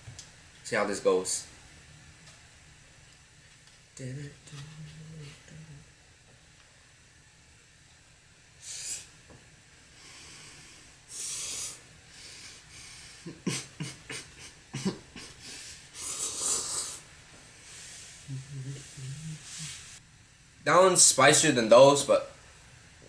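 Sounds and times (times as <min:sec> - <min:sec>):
person slurping noodles: 0:11.1 - 0:11.8, 0:16.0 - 0:17.0.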